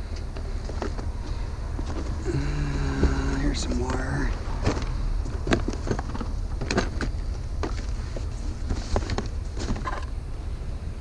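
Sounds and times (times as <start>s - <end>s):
steady low rumble: 0.0s - 11.0s
rustling: 0.3s - 10.1s
trash knocks and clicks: 0.3s - 10.1s.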